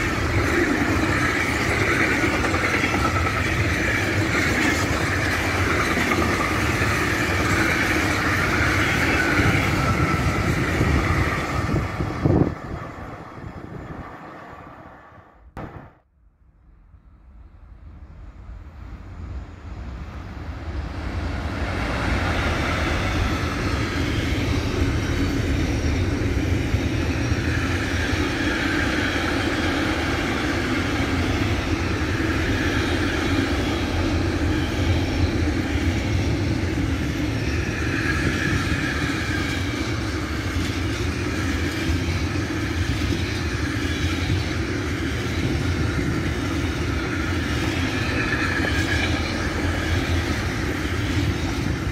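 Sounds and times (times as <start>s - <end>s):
freight train rolling past: 0.0s - 16.0s, 16.6s - 51.9s.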